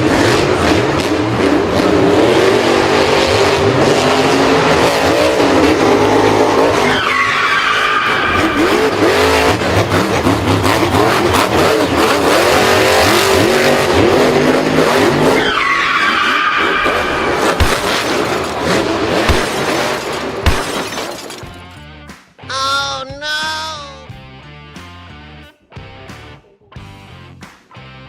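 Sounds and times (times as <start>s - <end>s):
racing car engine revving: 0.0s - 20.4s
tyres squealing and skidding: 1.8s - 21.4s.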